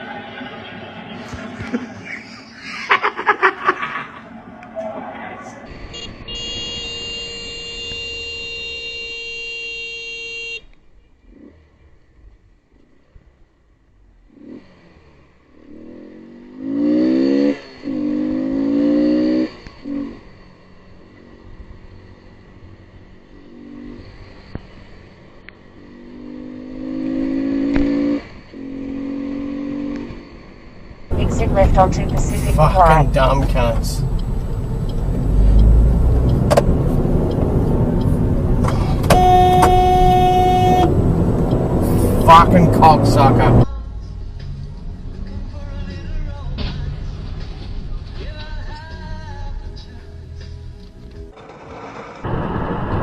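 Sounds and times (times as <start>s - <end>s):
road traffic noise: 0.0s - 53.0s
car horn honking: 5.7s - 10.7s, 31.1s - 36.2s, 37.7s - 43.6s.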